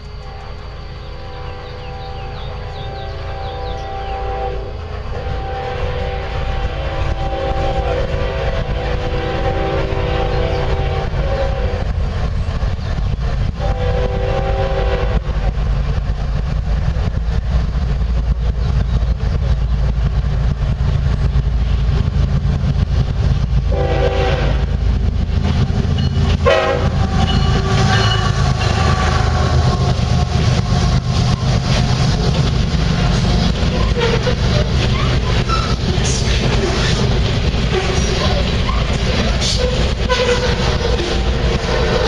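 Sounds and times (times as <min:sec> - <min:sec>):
diesel locomotive rumble: 0:00.0 - 0:42.0
train air horn blasts: 0:01.2 - 0:12.0, 0:13.6 - 0:15.5, 0:23.6 - 0:24.9, 0:26.2 - 0:31.2, 0:33.7 - 0:34.7, 0:39.4 - 0:42.0.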